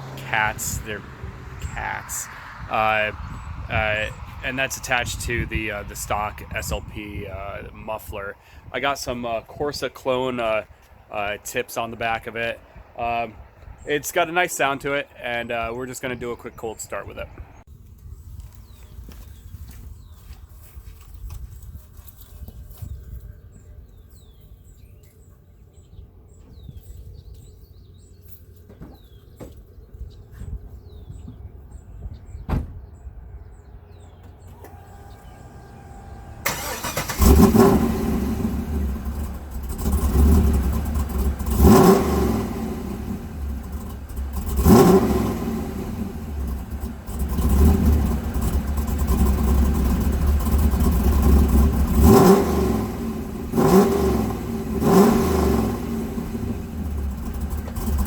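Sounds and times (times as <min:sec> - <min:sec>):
car engine starting and revving: 0:00.0 - 0:08.0, 0:32.9 - 0:58.0
rumbling engine idle: 0:00.0 - 0:12.8, 0:33.6 - 0:58.0.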